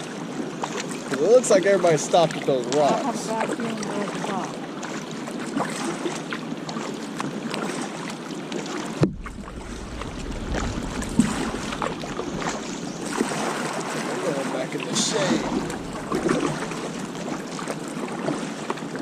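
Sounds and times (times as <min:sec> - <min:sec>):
paddle strokes splashing: 0:02.1 - 0:19.0
wind rumble on microphone: 0:09.0 - 0:19.0.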